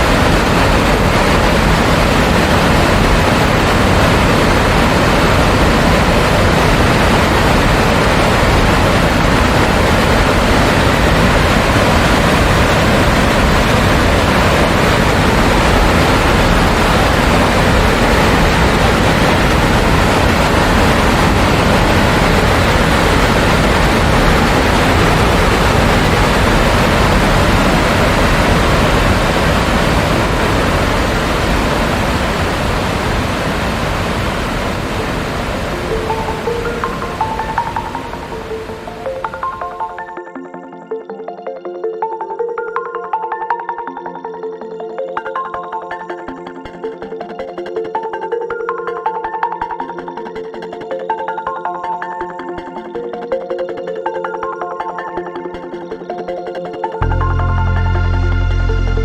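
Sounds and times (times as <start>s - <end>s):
waterfall roaring: 0.0s - 40.0s.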